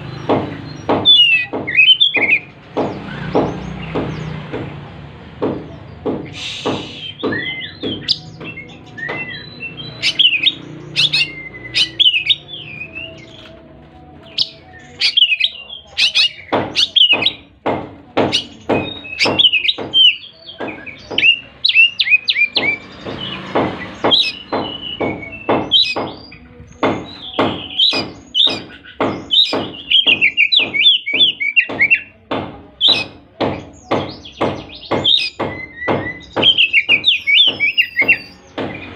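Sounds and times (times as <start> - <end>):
sharp knocks: 0.0 - 9.4, 16.3 - 21.6, 22.4 - 38.9
bird singing whistled trills: 6.3 - 13.5, 14.2 - 17.5, 24.0 - 32.1, 33.8 - 38.6.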